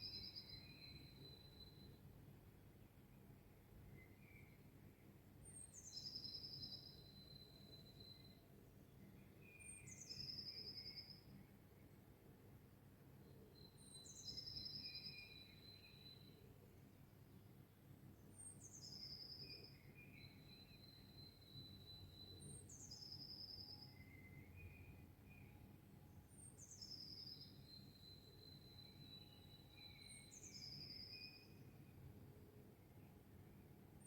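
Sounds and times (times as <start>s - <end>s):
birdsong with long whistle: 0.0s - 2.2s, 5.5s - 8.4s, 9.1s - 11.9s, 13.3s - 16.5s, 18.4s - 25.7s, 26.3s - 32.0s.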